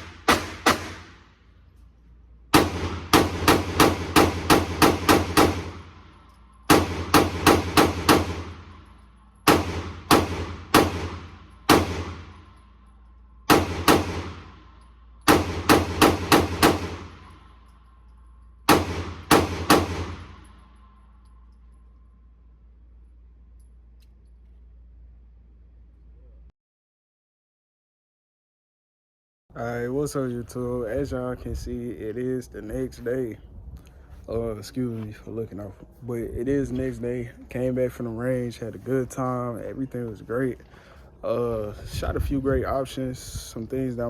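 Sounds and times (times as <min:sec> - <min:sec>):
rapid pistol shots echoing: 0:00.0 - 0:01.3, 0:02.5 - 0:08.8, 0:09.4 - 0:12.5, 0:13.5 - 0:17.6, 0:18.7 - 0:20.7.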